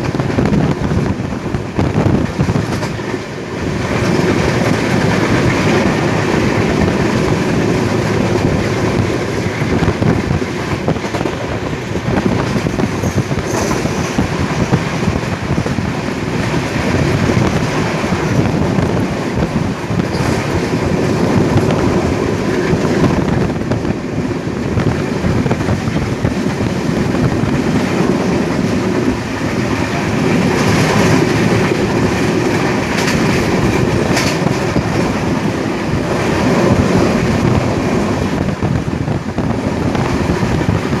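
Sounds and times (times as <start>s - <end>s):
train coaches rumbling: 0.0s - 41.0s
wheels clicking over rail joints: 25.1s - 38.7s.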